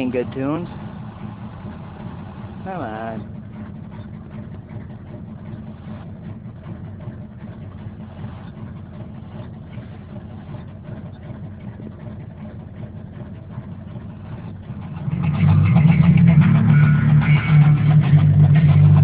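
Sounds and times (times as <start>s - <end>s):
truck engine idling: 0.0s - 19.0s
music from car radio: 15.9s - 19.0s.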